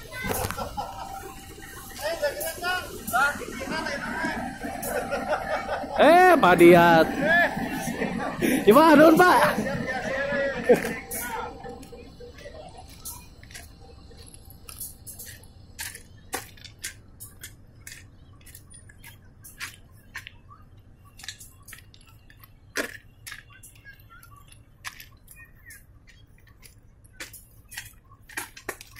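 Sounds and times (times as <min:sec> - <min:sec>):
wagons rumbling low: 0:00.0 - 0:15.1.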